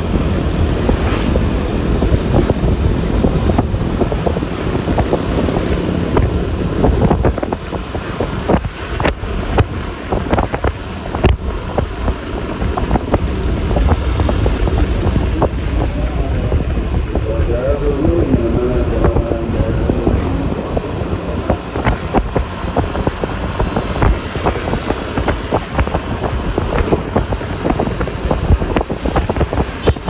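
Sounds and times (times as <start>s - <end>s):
wind on microphone: 0.0s - 30.0s
sharp crackles and knocks: 4.0s - 15.5s.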